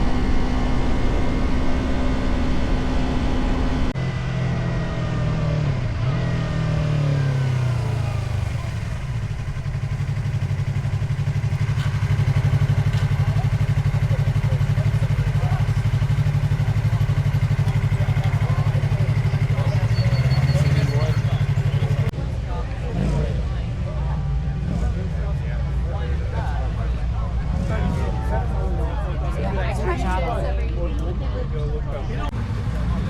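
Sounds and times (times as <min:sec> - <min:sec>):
motorcycle engine: 0:00.0 - 0:29.4.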